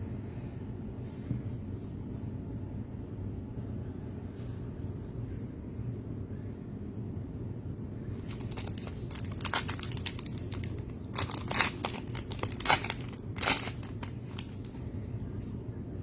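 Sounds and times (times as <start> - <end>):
wrapper tearing and crinkling: 8.2 - 14.7.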